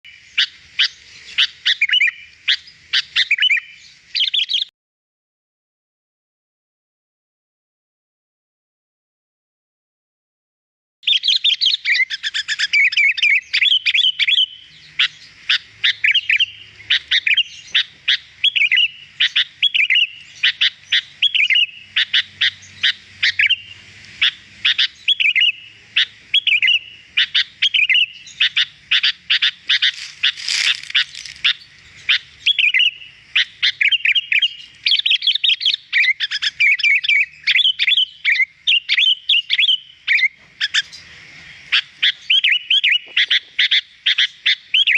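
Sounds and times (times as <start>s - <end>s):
bulbul singing: 11.0s - 44.9s.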